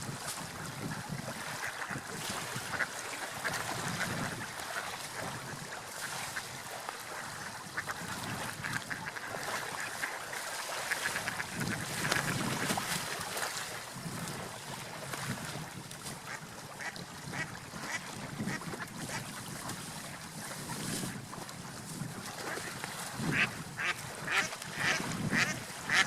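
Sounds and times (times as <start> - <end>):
ducks quacking: 0.9 - 6.5, 7.2 - 12.7, 16.3 - 19.2, 23.3 - 26.0
small water splashes and clicks: 1.4 - 5.3, 5.9 - 26.0.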